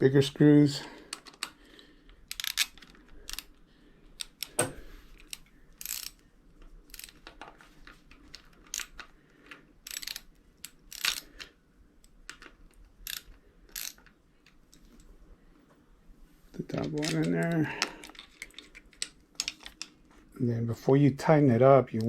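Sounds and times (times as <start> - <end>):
hand tool clicking and scraping: 2.3 - 3.5, 4.2 - 6.2, 6.9 - 7.3, 8.2 - 9.1, 9.8 - 11.5, 12.3 - 14.6.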